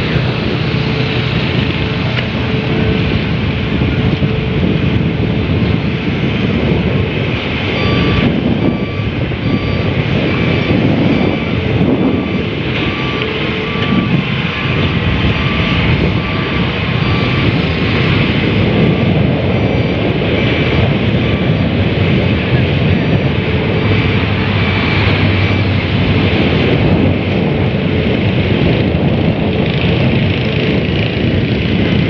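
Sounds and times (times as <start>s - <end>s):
heavy machinery engine rumble: 0.0s - 32.0s
warning alarm beeping: 6.9s - 29.0s.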